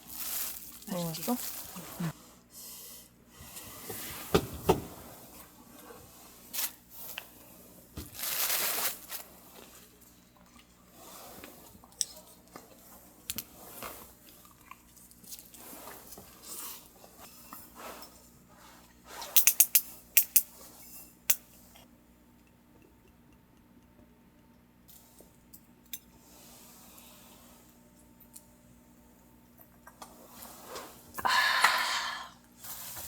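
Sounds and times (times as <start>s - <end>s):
chewing and crunching food: 11.5s - 17.0s.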